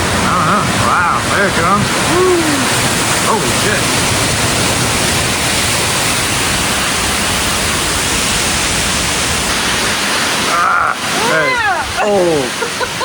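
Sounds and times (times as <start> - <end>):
gusting wind: 0.0 - 13.0
heavy rain downpour: 0.0 - 13.0.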